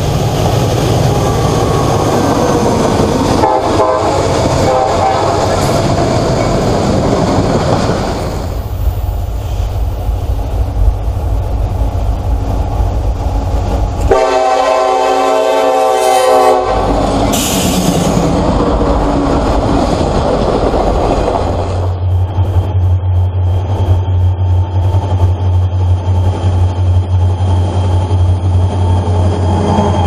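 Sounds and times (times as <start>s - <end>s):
freight train wheels clattering: 0.0s - 15.2s, 15.8s - 30.0s
locomotive horn blast: 3.2s - 5.8s, 14.0s - 17.8s.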